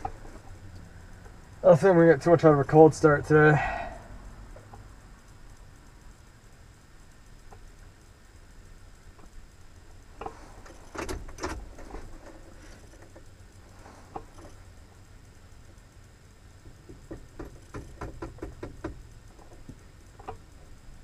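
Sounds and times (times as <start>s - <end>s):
faint low rumble: 0.0s - 17.1s
sharp knocks and rattles: 9.1s - 14.8s, 16.5s - 20.8s.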